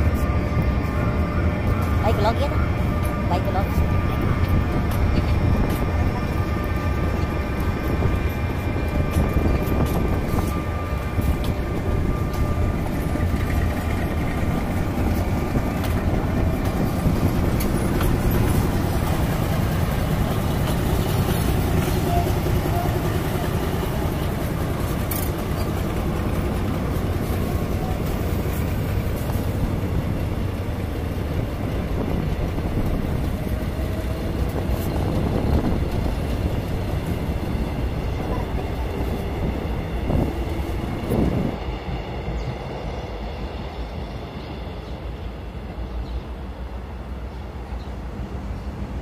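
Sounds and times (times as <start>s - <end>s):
constant drone: 0.0s - 49.0s
train rumbling: 0.0s - 49.0s.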